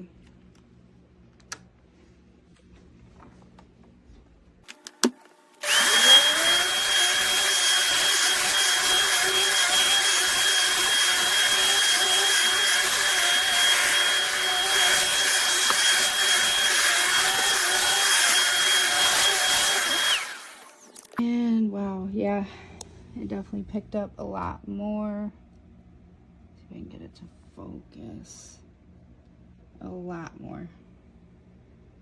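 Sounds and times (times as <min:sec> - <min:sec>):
vacuum switch click: 0:04.7 - 0:05.3
vacuum cleaner motor whine: 0:04.7 - 0:21.2.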